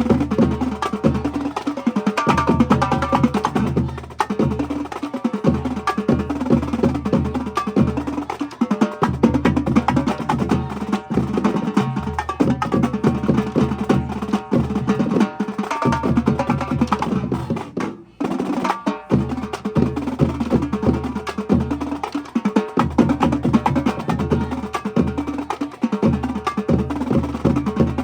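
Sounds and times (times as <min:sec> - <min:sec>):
marching drumline cadence: 0:00.0 - 0:28.0.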